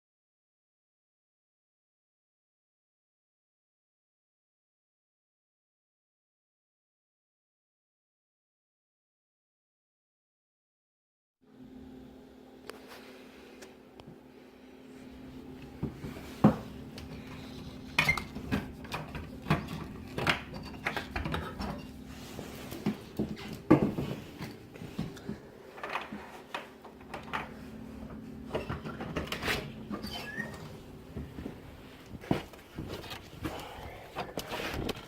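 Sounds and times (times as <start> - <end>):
steady low hum: 11.4 - 35.0.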